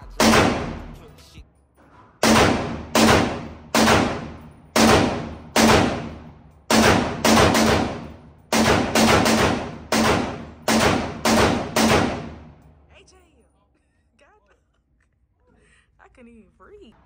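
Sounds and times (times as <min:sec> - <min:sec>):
pistol shots echoing: 0:00.0 - 0:01.0, 0:02.2 - 0:12.7.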